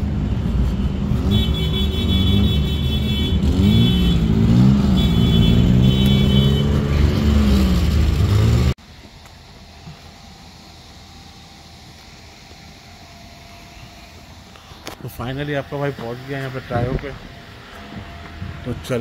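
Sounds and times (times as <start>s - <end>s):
car engine accelerating: 3.3s - 8.8s.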